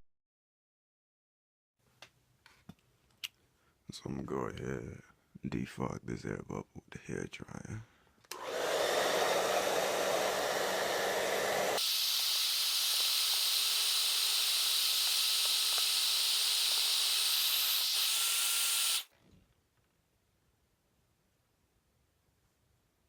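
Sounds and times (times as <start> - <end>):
hair dryer blowing: 8.3 - 19.1.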